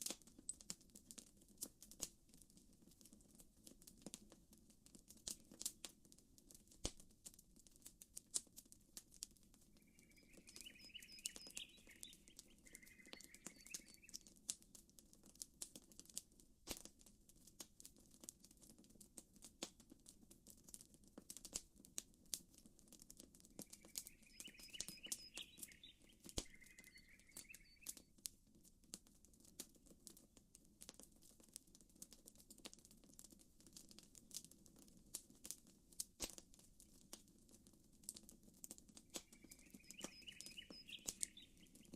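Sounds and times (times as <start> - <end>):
campfire crackling: 0.0 - 41.9
bird chirping: 9.8 - 14.3, 23.6 - 28.1, 39.2 - 41.9.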